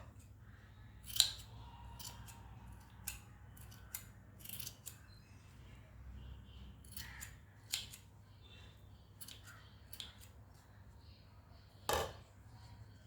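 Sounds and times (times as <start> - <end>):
scissors snipping: 1.1 - 5.1, 6.9 - 8.0.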